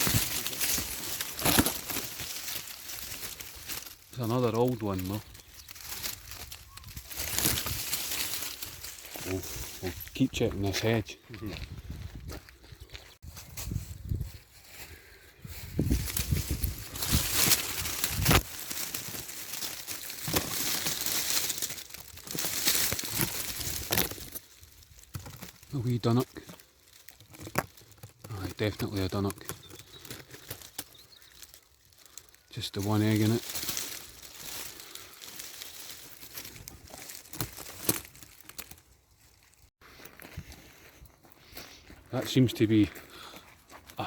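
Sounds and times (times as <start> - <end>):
twigs snapping: 0.0 - 10.2, 15.8 - 39.7
branches cracking: 0.0 - 11.0, 15.5 - 40.3
hedge leaves rustling and crackling: 0.0 - 12.1, 12.9 - 40.3.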